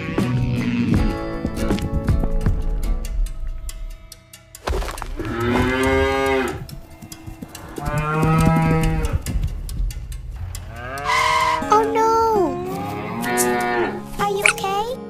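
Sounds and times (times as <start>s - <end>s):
cow mooing: 5.2s - 6.7s, 7.5s - 9.3s, 10.7s - 11.7s, 12.6s - 14.0s.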